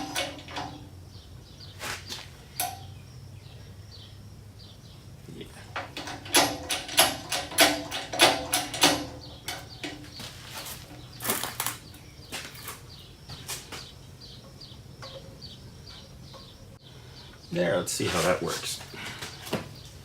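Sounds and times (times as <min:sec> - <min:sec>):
clattering knocks: 0:05.7 - 0:12.9.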